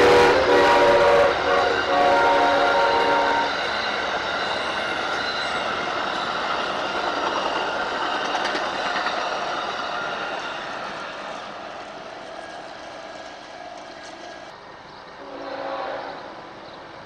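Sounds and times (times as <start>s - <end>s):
train wheels rushing on rail: 0.0s - 17.0s
wheel squeal: 2.9s - 14.5s.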